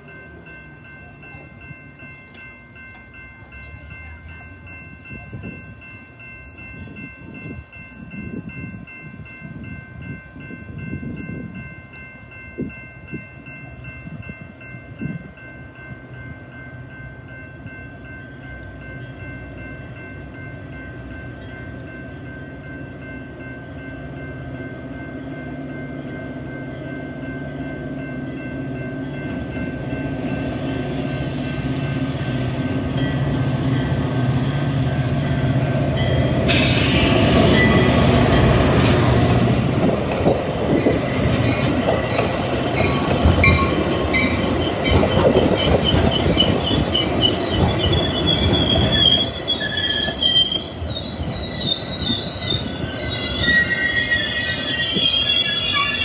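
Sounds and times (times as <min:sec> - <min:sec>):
diesel locomotive drone: 0:00.0 - 0:56.0
train rushing past: 0:29.3 - 0:56.0
wheels and brakes squealing: 0:36.0 - 0:38.2, 0:44.6 - 0:56.0.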